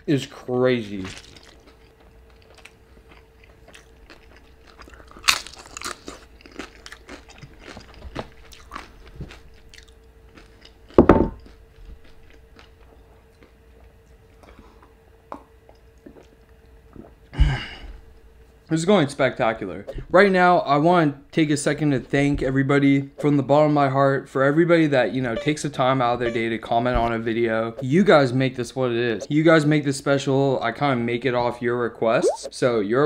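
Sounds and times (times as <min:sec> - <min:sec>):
chewing crispy taco: 0:00.8 - 0:15.0.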